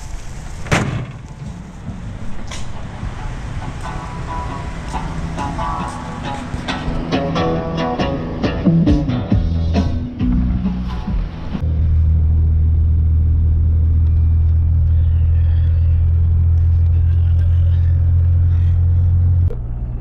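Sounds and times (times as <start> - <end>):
vehicle driving drone from inside: 1.3 - 8.6, 9.4 - 20.0.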